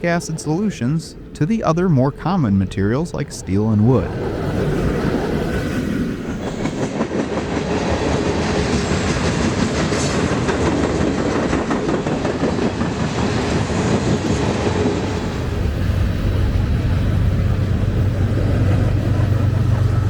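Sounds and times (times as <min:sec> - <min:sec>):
train wheels rattling on rails: 0:04.0 - 0:20.0.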